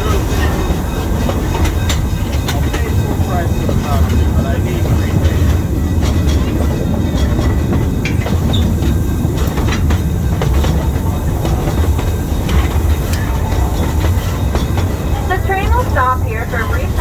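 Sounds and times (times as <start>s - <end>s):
train car rolling on track: 0.0s - 17.0s.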